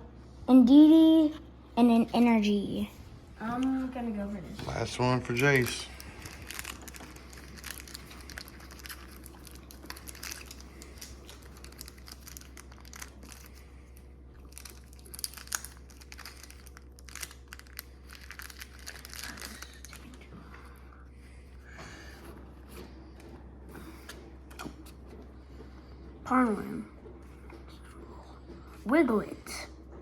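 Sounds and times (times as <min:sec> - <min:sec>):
foil wrapper crinkling: 0:05.0 - 0:20.3.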